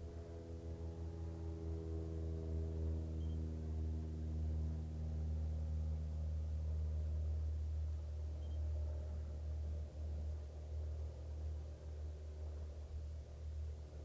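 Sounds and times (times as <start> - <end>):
steady low hum: 0.0 - 14.0
faint high ringing: 8.3 - 9.2
short faint high beeps: 8.4 - 8.7.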